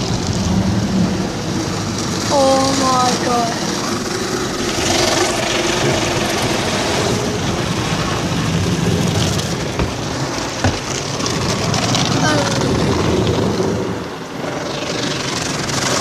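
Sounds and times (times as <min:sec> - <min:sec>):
car wash machinery: 0:00.0 - 0:16.0
car wash water spray: 0:00.0 - 0:16.0
short knocks: 0:09.8 - 0:11.0.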